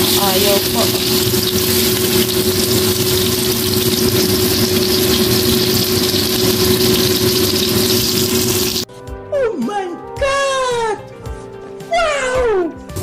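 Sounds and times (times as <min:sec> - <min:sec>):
meat sizzling in oil: 0:00.0 - 0:08.9.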